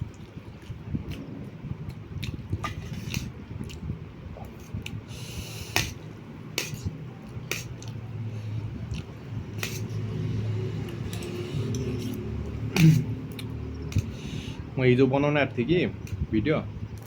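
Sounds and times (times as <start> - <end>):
wet chewing: 6.6 - 8.1, 8.8 - 9.9.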